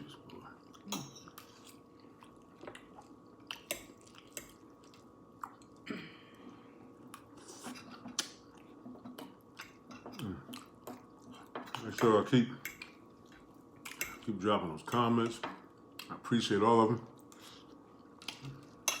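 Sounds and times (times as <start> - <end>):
chewing and mouth sounds: 0.1 - 5.9, 7.0 - 11.5.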